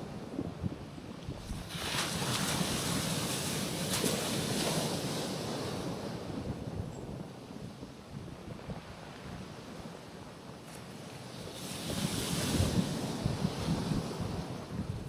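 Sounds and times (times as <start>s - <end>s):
wind on microphone: 0.0s - 15.0s
waves washing onto rocks: 1.4s - 6.4s, 8.8s - 15.0s.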